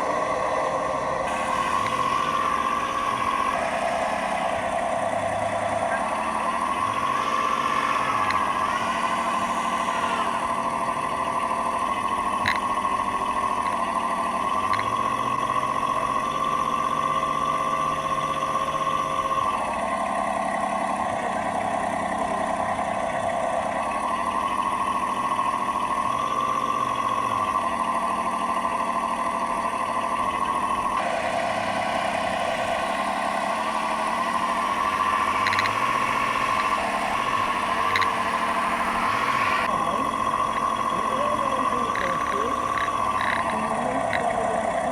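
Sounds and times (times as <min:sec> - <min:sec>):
simulated diesel engine: 0:00.0 - 0:44.9.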